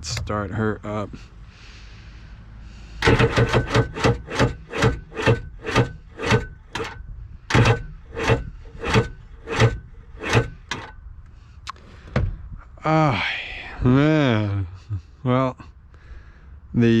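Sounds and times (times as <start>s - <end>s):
engine cranking by starter: 2.7s - 11.0s.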